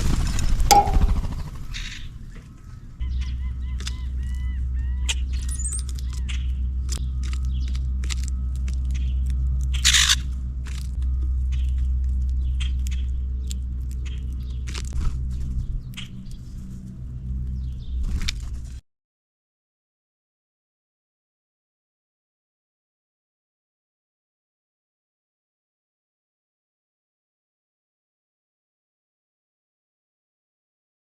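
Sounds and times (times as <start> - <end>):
small birds chirping: 0.0 - 8.0, 8.7 - 10.3, 11.0 - 18.4
steady low rumble: 0.0 - 18.8.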